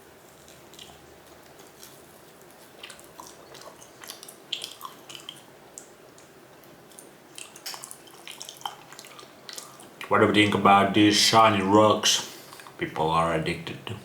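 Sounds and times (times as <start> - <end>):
person chewing wet clicks: 0.0 - 10.2, 12.3 - 12.8.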